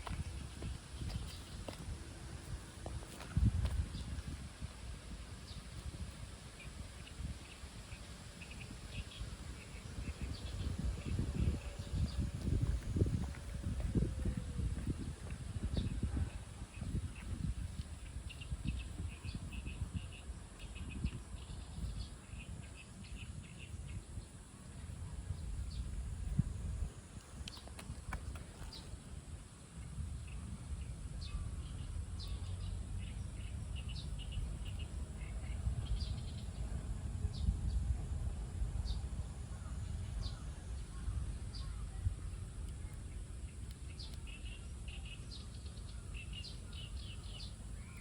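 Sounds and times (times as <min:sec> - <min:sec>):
steady low rumble: 0:00.0 - 0:48.0
low rumble: 0:08.6 - 0:17.9
small birds chirping: 0:39.7 - 0:48.0.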